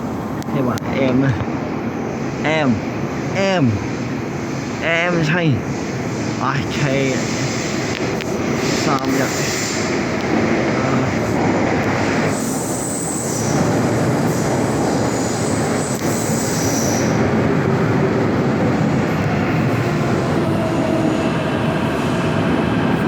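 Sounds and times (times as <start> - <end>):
metro train rumbling on rails: 0.0 - 23.0
high-pitched wheel squeal: 12.3 - 13.7, 15.1 - 17.2.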